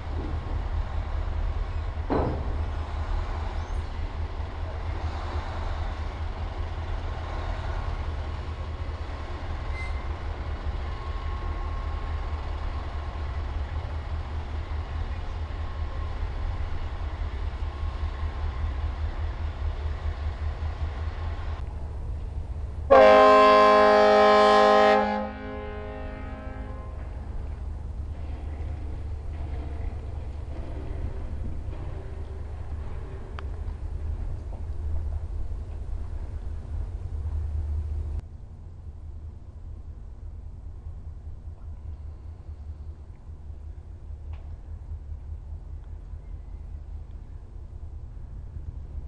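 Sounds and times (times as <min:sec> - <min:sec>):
ship's horn blast: 0:22.9 - 0:27.4.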